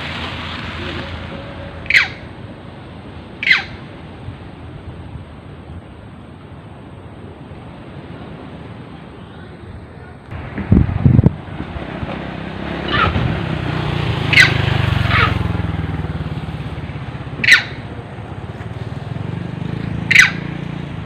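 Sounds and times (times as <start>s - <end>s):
high-pitched falling calls: 0.8s - 2.4s, 3.4s - 3.9s, 14.2s - 15.5s, 17.3s - 17.9s, 20.1s - 20.5s.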